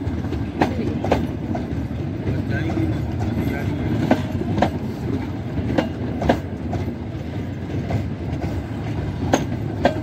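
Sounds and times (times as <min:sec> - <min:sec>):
train coaches rumbling: 0:00.0 - 0:10.0
wheels clicking over rail joints: 0:00.0 - 0:10.0.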